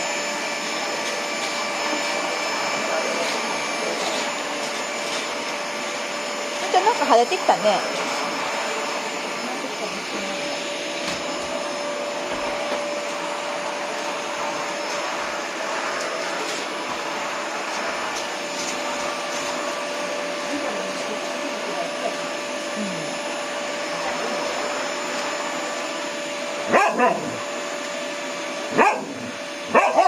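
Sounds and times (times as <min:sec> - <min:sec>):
vacuum cleaner running: 0:00.0 - 0:30.0
dog barking: 0:26.7 - 0:27.4, 0:28.7 - 0:30.0.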